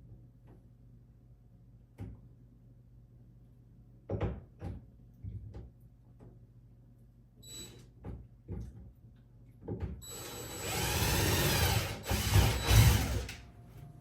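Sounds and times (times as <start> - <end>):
power drill drilling into wood: 10.1 - 13.4.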